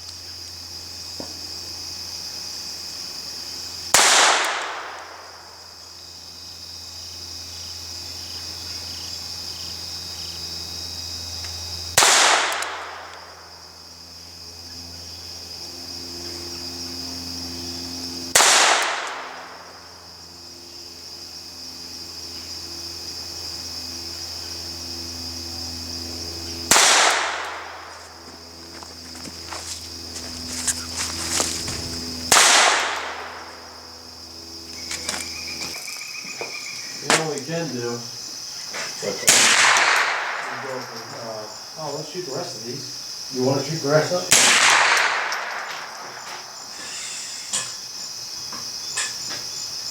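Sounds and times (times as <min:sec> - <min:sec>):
insects buzzing: 0:00.0 - 0:49.9
gunshots with echo: 0:04.0 - 0:05.1, 0:12.0 - 0:13.1, 0:18.4 - 0:19.6, 0:26.7 - 0:27.9, 0:32.3 - 0:33.5, 0:39.3 - 0:40.8.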